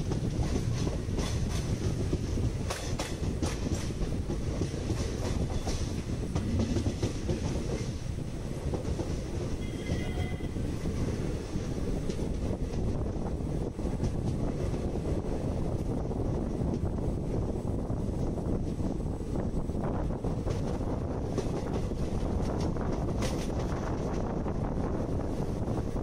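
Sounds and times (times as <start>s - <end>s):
wheels clicking over rail joints: 0.0s - 16.9s, 20.2s - 24.7s
train rumbling: 0.0s - 26.0s.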